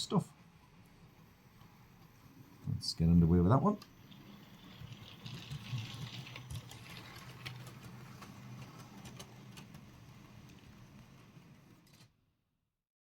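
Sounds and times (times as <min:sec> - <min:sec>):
model train motor hum: 0:00.9 - 0:11.9
wheels clicking over rail joints: 0:03.3 - 0:12.0.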